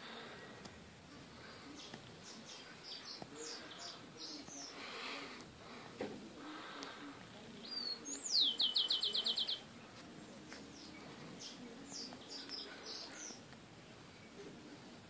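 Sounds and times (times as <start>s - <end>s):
small bird singing trills: 1.8s - 4.8s, 7.6s - 13.4s.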